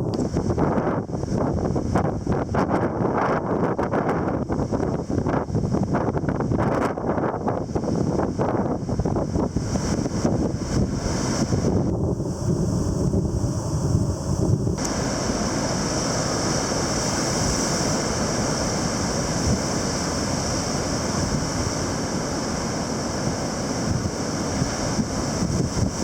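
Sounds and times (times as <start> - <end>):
wind blowing across microphone: 0.0 - 26.0
heavy surf: 7.4 - 26.0.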